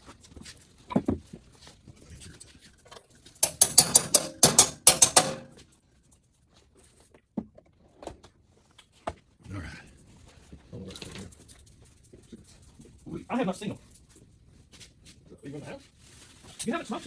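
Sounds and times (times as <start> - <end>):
ratchet wrench clicking: 3.4 - 5.5.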